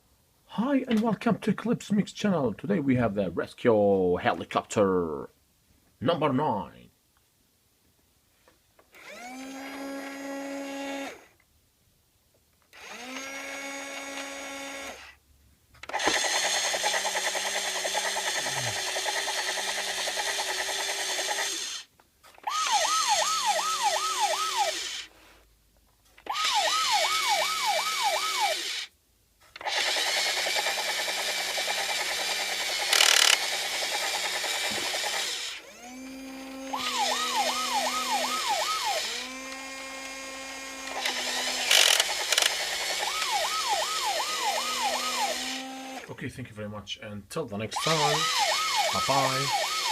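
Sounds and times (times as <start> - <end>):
toy helicopter rotor whirring: 12.8 - 15.1, 15.9 - 25.1, 26.2 - 28.9, 29.6 - 46.1, 47.7 - 49.9
warbling electronic siren: 22.6 - 24.8, 26.4 - 28.5, 36.8 - 39.0, 43.1 - 45.4.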